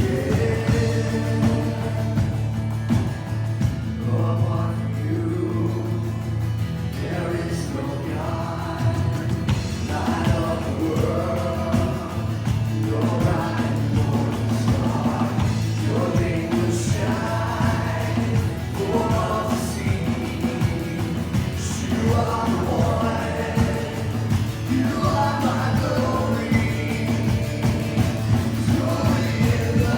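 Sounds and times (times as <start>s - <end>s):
group of voices singing: 0.0s - 29.9s
band with steady beat: 9.3s - 29.9s.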